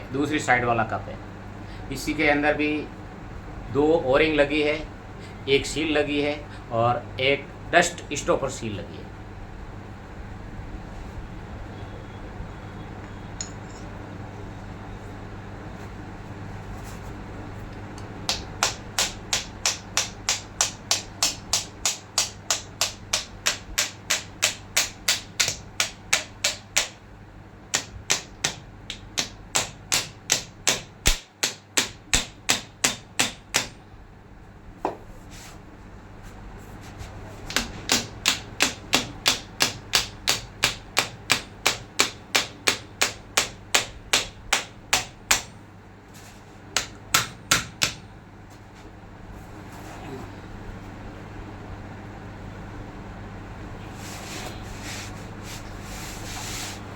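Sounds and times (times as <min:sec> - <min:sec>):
hammer tapping on metal: 0:18.3 - 0:27.0, 0:27.7 - 0:33.8, 0:37.5 - 0:45.6, 0:46.8 - 0:48.1.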